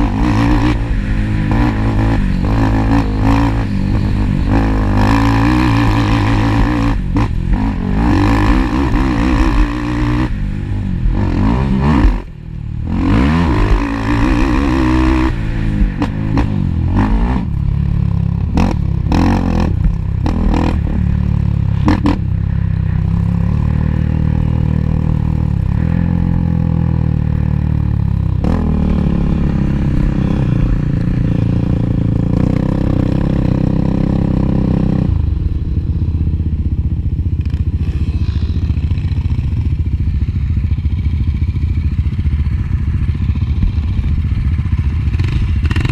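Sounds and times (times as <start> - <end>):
atv engines revving: 0.0 - 45.9
clatter: 37.3 - 45.9.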